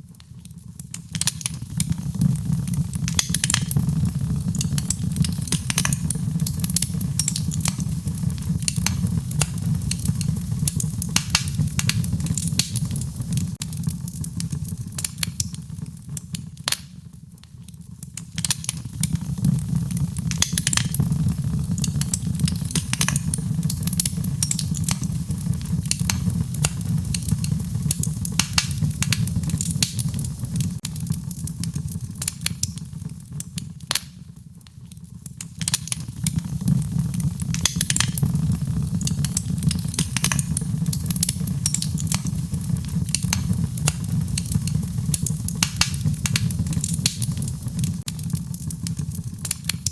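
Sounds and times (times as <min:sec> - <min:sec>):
low rumble of flame: 0:00.0 - 0:49.9
wood fire crackling and popping: 0:00.0 - 0:49.9.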